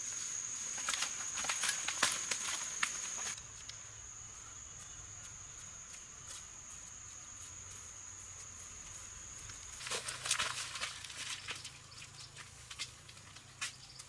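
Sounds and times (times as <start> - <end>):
insect trilling: 0.0 - 6.0.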